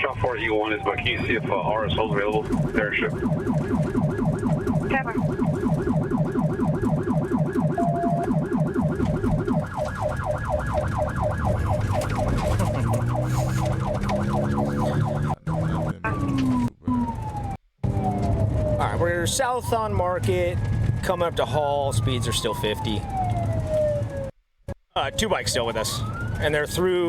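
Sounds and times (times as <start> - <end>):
engine tone: 0.0 - 9.8
lower warbling siren layer: 0.0 - 24.3, 25.0 - 27.0
police siren fast warble: 0.0 - 24.3, 25.0 - 27.0.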